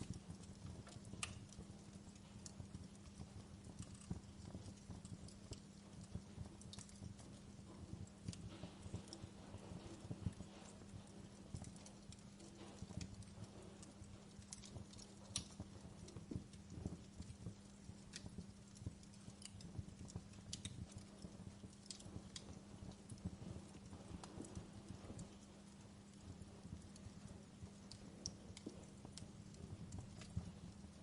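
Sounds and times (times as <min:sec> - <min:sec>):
low rumble of burning logs: 0:00.0 - 0:31.0
wood fire crackling: 0:00.0 - 0:31.0.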